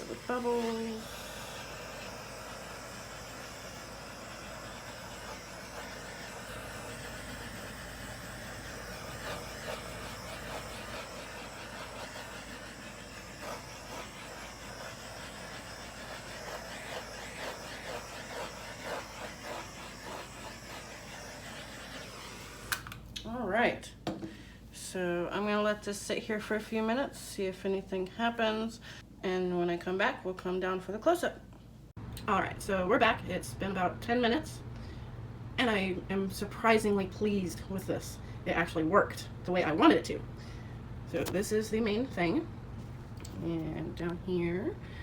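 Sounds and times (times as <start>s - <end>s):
butane torch hissing: 0.0s - 23.0s.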